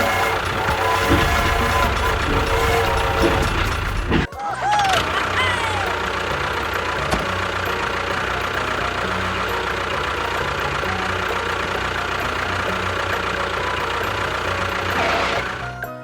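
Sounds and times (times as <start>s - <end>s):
motor droning with faint whine: 0.0s - 4.3s.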